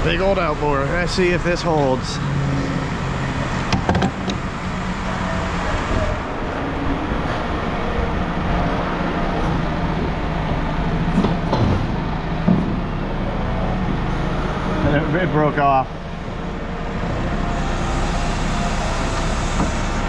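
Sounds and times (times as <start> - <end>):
heavy machinery engine rumble: 0.0 - 20.0
metal knocks: 3.6 - 4.5.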